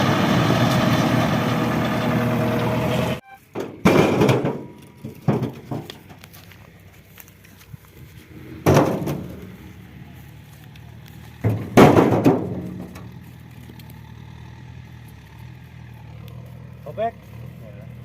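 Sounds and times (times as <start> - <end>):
loud thuds: 3.5 - 6.2, 8.6 - 9.5, 11.4 - 13.1.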